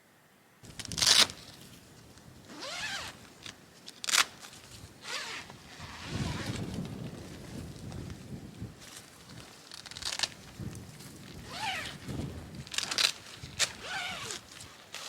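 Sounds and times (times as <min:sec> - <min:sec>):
zipper rasping: 0:02.5 - 0:03.2, 0:05.0 - 0:06.7, 0:11.4 - 0:12.0, 0:12.8 - 0:15.0
fabric rustling: 0:11.2 - 0:15.0.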